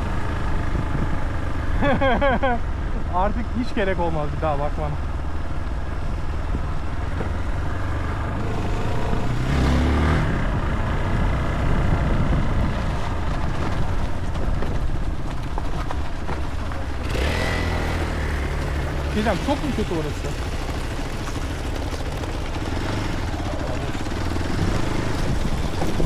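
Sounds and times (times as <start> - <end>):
motorcycle engine running: 0.0 - 26.0
wind and road noise: 0.0 - 26.0.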